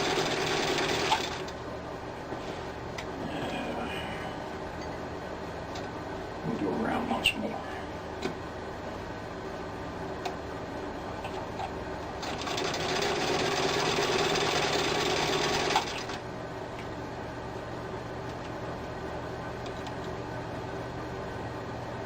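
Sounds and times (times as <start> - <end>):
sewing machine stitching: 0.0 - 1.5, 12.2 - 16.2.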